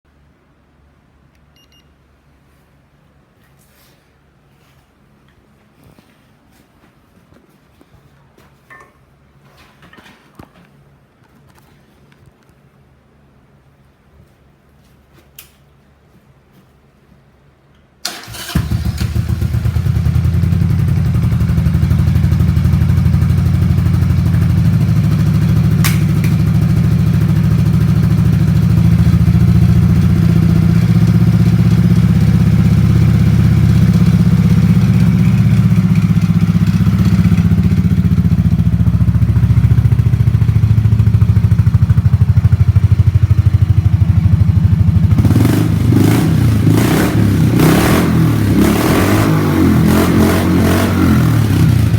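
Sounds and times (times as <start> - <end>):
motorcycle engine idling and revving: 18.2 - 51.9.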